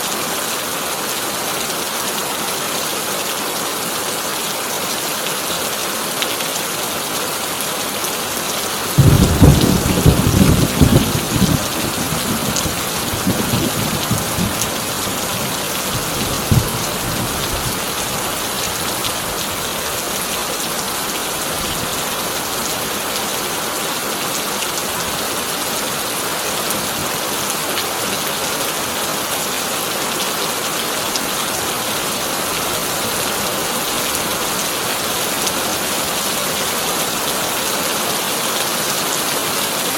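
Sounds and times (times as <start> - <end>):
heavy rain on a tin roof: 0.0 - 39.9
thunderclap with rumbles: 9.0 - 15.3, 15.9 - 17.8.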